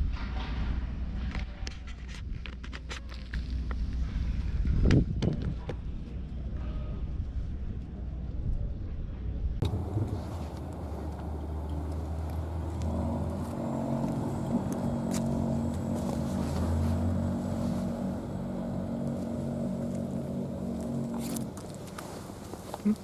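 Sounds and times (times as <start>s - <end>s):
vehicle engine running: 9.6s - 23.0s.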